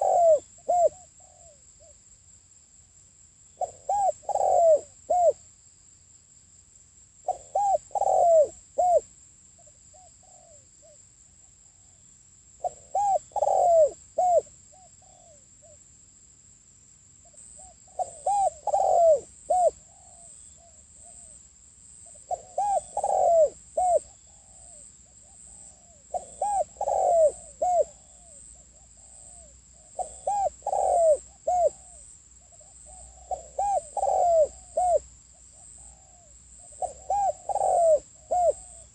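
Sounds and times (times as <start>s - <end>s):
dove cooing: 0.0s - 1.6s, 3.6s - 5.4s, 7.3s - 9.1s, 10.0s - 11.0s, 12.6s - 15.8s, 17.6s - 21.4s, 22.1s - 38.9s.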